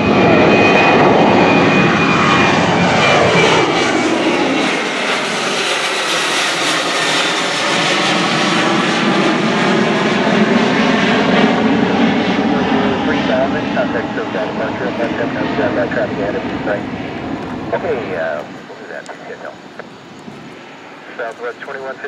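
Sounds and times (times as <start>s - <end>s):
jet engine roar: 0.0s - 22.0s.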